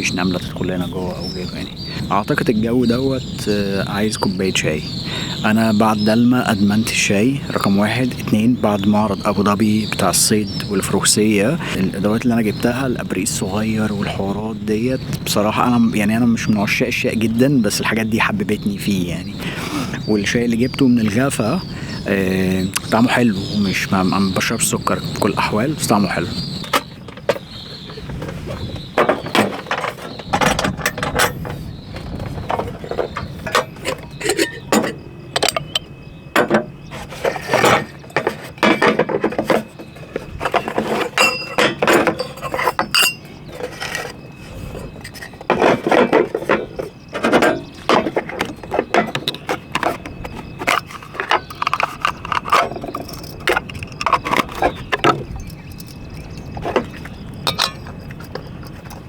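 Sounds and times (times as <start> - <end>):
metal camping gear clinking: 26.6 - 59.0.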